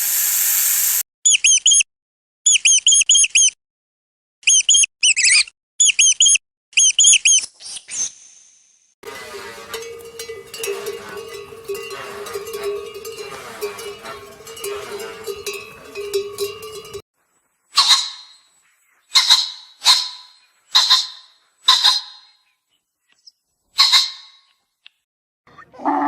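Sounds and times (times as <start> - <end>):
continuous clattering noise: 9.0 - 17.0
steady low hum: 9.0 - 17.0.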